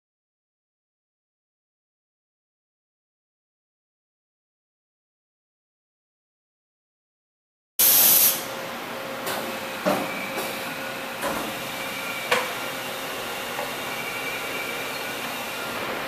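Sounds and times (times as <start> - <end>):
air hiss burst: 7.8 - 8.5
machine hum with whine: 7.8 - 16.0.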